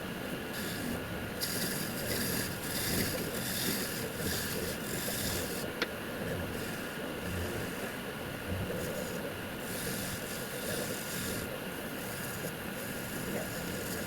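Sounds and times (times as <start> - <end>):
turning tool hissing on wood: 0.6 - 5.7, 8.8 - 14.0.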